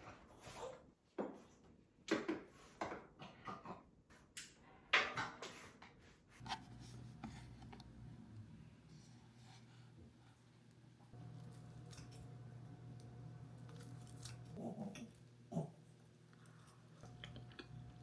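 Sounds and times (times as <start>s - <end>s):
faint steady low hum: 6.4s - 18.0s.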